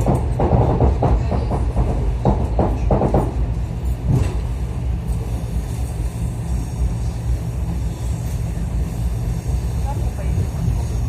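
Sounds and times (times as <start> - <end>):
train rumble inside carriage: 0.0 - 11.0.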